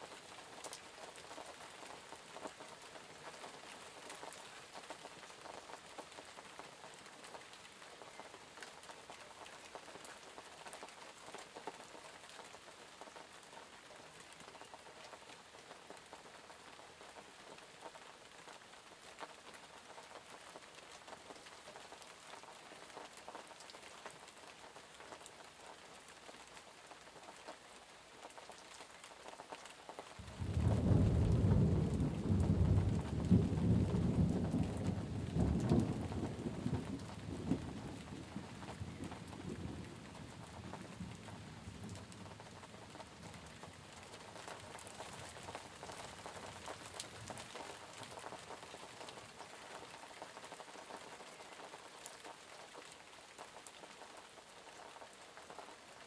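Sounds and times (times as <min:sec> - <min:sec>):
rain pattering: 0:00.0 - 0:56.0
thunder rumbling: 0:30.2 - 0:42.8.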